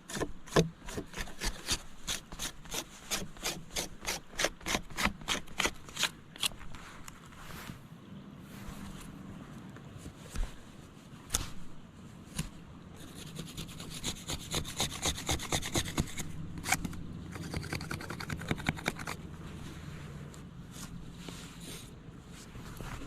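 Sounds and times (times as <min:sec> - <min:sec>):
knife scraping bark off stick: 0:00.0 - 0:06.8, 0:12.4 - 0:19.2.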